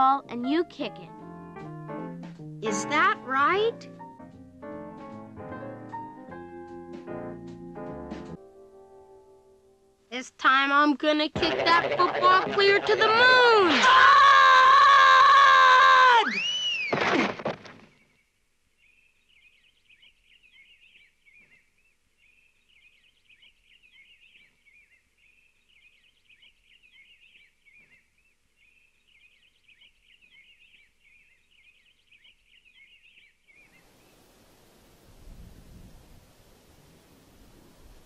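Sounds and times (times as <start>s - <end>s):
cartoon crash to the ground: 16.8s - 17.9s
birds twittering faintly: 17.8s - 34.7s
soft hiss: 33.5s - 38.0s.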